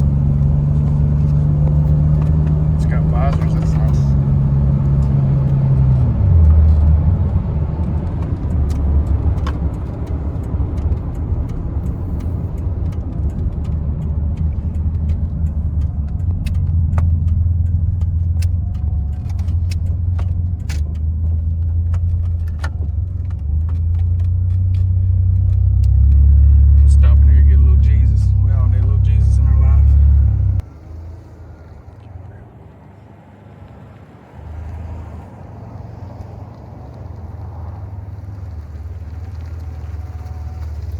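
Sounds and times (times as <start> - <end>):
light clicks and rattles: 0.0 - 32.5
engine and road drone: 0.0 - 40.9.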